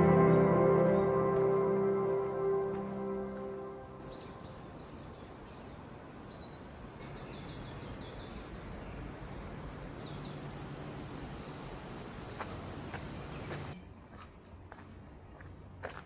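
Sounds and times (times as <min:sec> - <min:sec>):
soft ambient music with gong: 0:00.0 - 0:04.4
birds chirping: 0:00.0 - 0:05.8.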